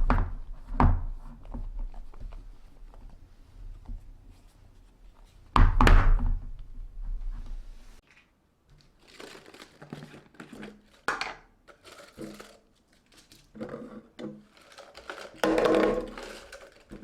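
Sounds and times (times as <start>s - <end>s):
plastic rustling and crinkling: 8.0s - 17.0s.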